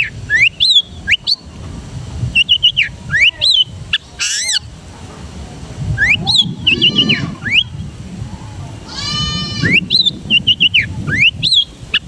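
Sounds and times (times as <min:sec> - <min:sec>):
bird singing whistled notes: 0:00.0 - 0:01.5, 0:02.4 - 0:04.6, 0:06.0 - 0:07.8, 0:09.6 - 0:12.0
low background rumble: 0:00.0 - 0:11.4
bird harsh rasping call: 0:02.5 - 0:04.7, 0:06.0 - 0:07.7, 0:08.9 - 0:09.8.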